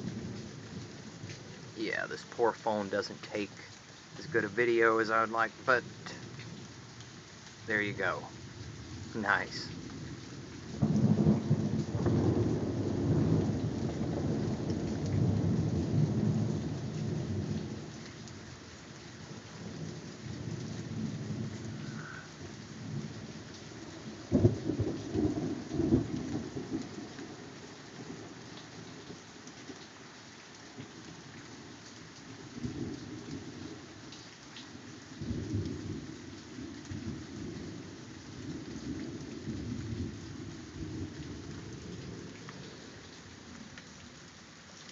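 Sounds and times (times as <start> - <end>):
steady rain: 0.0 - 44.9
thunder rumbling: 7.6 - 17.9.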